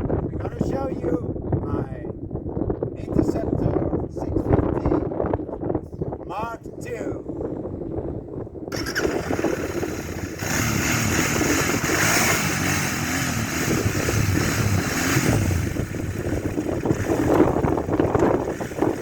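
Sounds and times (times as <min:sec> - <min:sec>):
rushing wind noise: 0:00.0 - 0:19.0
motorcycle engine running: 0:08.7 - 0:19.0.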